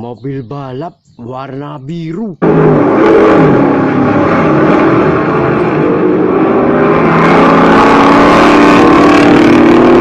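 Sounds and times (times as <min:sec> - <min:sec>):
race car engine drone: 0:02.4 - 0:10.0.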